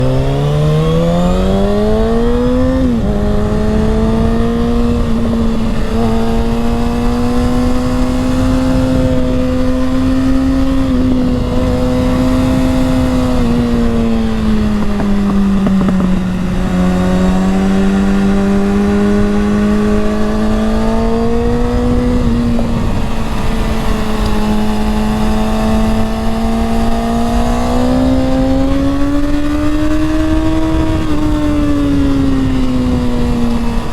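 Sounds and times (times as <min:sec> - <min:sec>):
motorcycle engine revving: 0:00.0 - 0:33.9
wind noise on microphone: 0:00.0 - 0:33.9.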